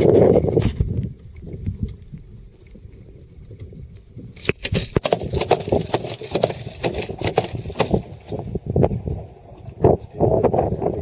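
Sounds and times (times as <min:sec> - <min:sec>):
sharp knocks and clattering: 0:04.4 - 0:08.4.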